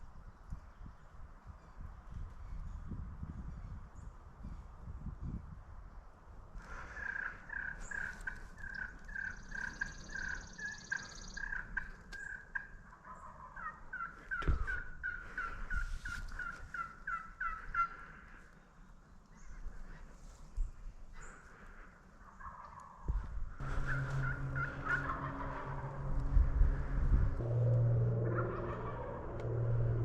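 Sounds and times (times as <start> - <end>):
turkey yelping: 22.2 - 22.9, 28.3 - 29.7.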